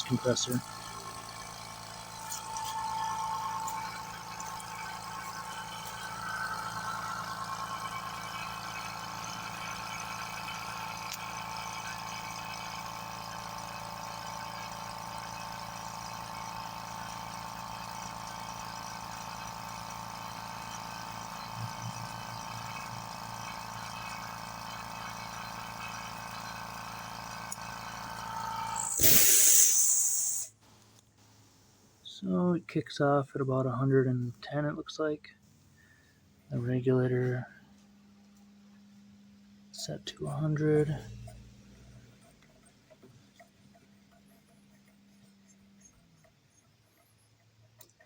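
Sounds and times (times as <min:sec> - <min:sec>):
air compressor running: 0:00.0 - 0:32.0
hiss of released air: 0:28.5 - 0:30.6.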